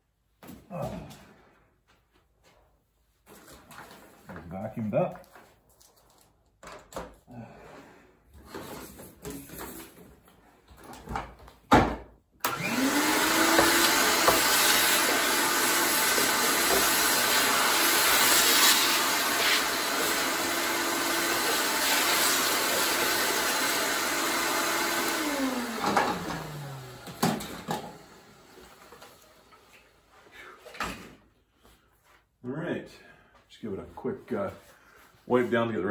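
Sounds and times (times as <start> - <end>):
vacuum cleaner running: 12.4 - 29.9.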